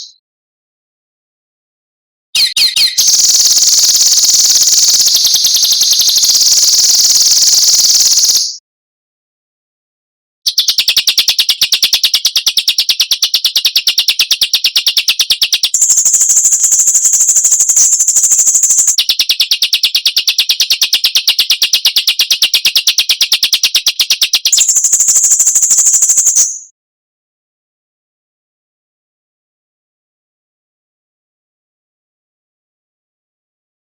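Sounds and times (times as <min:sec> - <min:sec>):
bird harsh rasping rattle: 0:02.4 - 0:08.6.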